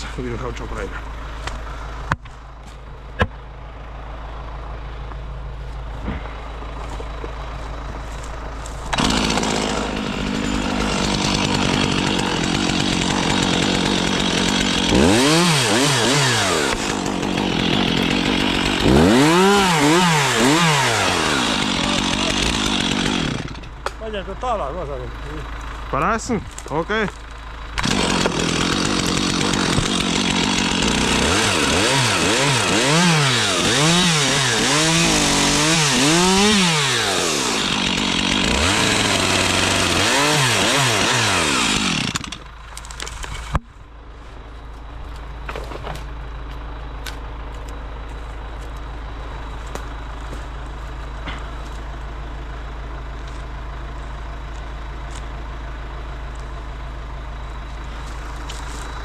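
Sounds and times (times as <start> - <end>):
engine idling: 0.0 - 15.2, 16.2 - 31.3, 41.5 - 59.0
chainsaw cutting at full throttle: 8.8 - 23.9, 27.8 - 43.6.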